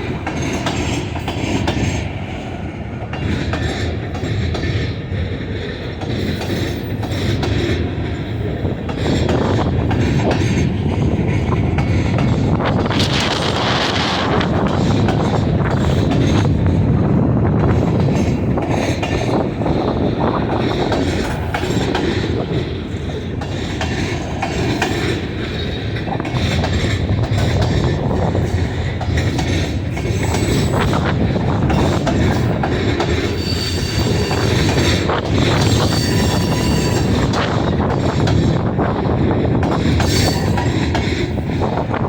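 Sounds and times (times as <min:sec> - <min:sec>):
train wheels clicking over rail joints: 0:00.0 - 0:42.0
high wheel squeal: 0:33.2 - 0:34.8, 0:35.5 - 0:37.3.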